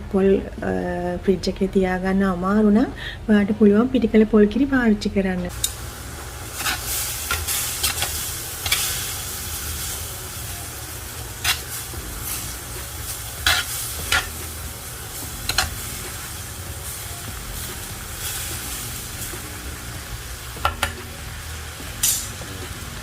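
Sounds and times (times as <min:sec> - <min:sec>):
food sizzling in a pan: 0:05.5 - 0:23.0.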